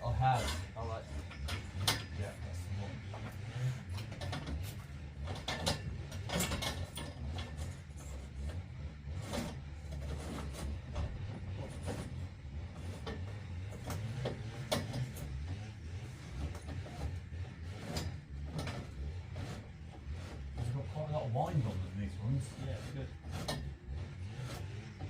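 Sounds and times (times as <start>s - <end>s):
metallic clicks and knocks: 3.2s - 8.6s, 12.9s - 15.6s.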